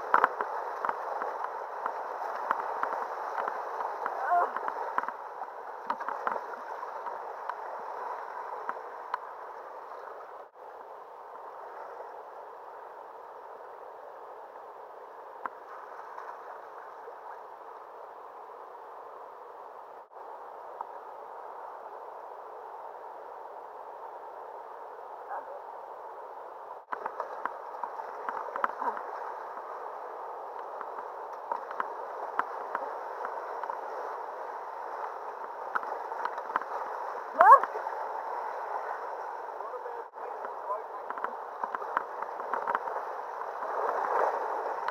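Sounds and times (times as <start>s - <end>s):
water splashes: 0.0s - 18.8s, 26.7s - 44.9s
river water rushing and gurgling: 0.0s - 44.9s.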